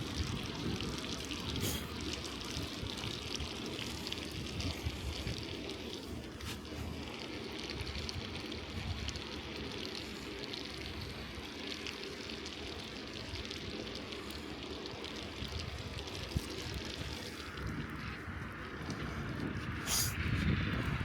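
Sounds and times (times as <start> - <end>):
wind rumble on microphone: 0.0 - 9.5, 15.0 - 21.0
bicycle tyres rolling on slush: 0.0 - 21.0.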